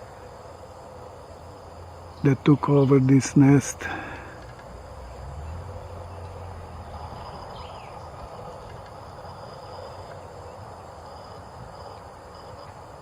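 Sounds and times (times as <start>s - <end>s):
low hum: 3.6s - 13.0s.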